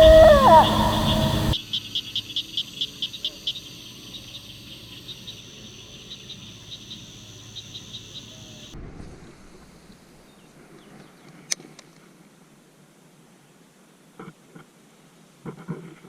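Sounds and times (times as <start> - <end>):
insects chirping: 0.0 - 8.8.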